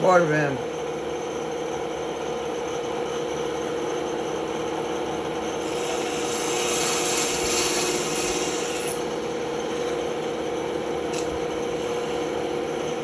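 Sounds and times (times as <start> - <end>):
band saw humming: 5.2 - 13.0
saw blade rasping through wood: 5.6 - 9.2.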